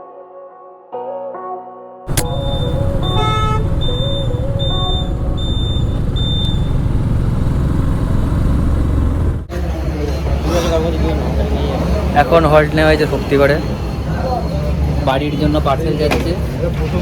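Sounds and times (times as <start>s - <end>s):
multi-tone horn blast: 2.1s - 6.2s
horns beeping in short toots: 2.1s - 7.3s
road and wind rumble: 2.1s - 9.8s.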